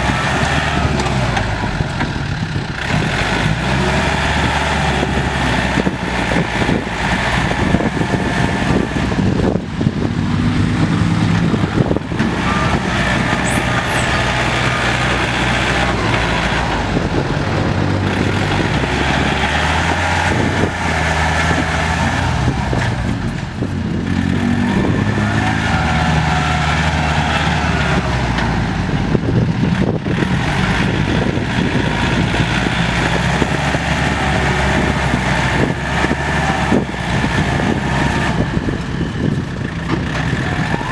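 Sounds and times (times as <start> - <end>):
tractor diesel engines under load: 0.0 - 40.9.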